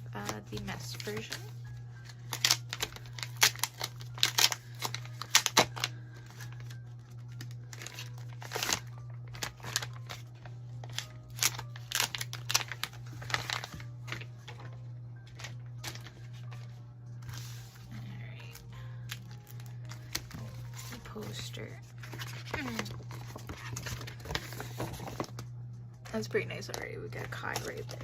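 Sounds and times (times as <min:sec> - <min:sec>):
plastic wrapping crinkling and tearing: 0:00.0 - 0:16.6, 0:17.3 - 0:25.5.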